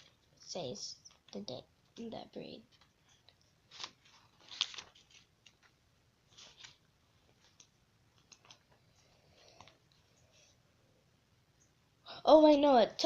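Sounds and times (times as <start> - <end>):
book pages turning: 2.6 - 8.8.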